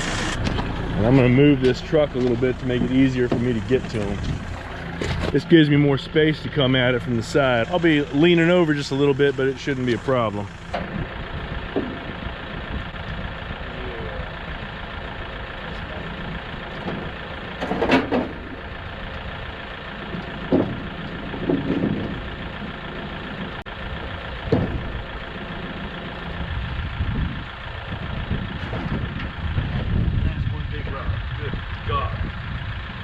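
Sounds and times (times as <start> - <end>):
vehicle engine idling: 0.0 - 33.0
short knocks: 20.0 - 22.3.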